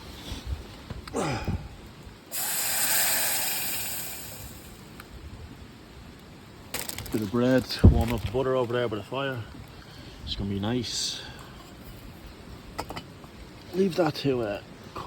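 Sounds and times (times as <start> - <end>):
burst of hissing: 2.3 - 4.9.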